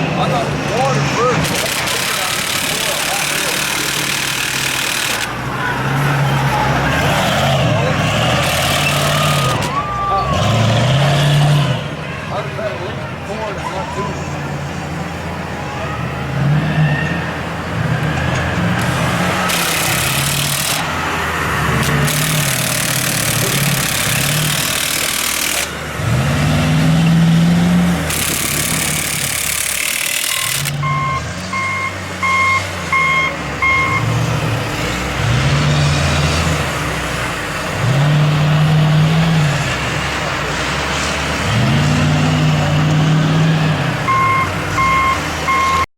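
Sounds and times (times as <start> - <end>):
truck engine revving: 0.0 - 45.9
reversing alarm beeping: 30.0 - 34.2, 44.1 - 45.9.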